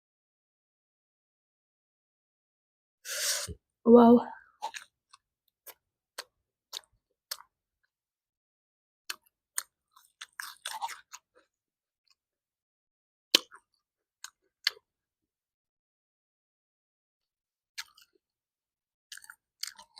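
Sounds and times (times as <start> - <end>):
chewing mouth clicks and smacks: 4.6 - 7.5, 9.1 - 11.4, 13.3 - 14.9, 17.8 - 18.2, 19.1 - 19.9.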